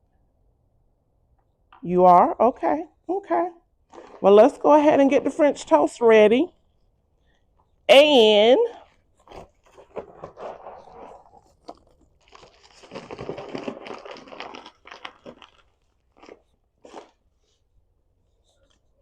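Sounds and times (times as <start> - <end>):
crunching and rattling of cat food: 3.8 - 4.6, 8.8 - 17.8.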